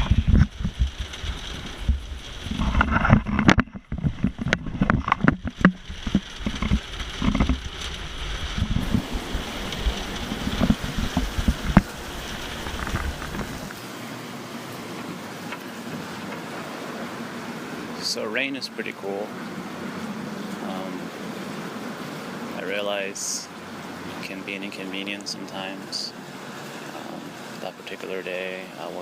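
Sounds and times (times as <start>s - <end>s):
low rumble on microphone: 0.0s - 13.8s
rain falling: 0.0s - 29.0s
raindrops tapping near microphone: 0.0s - 29.0s.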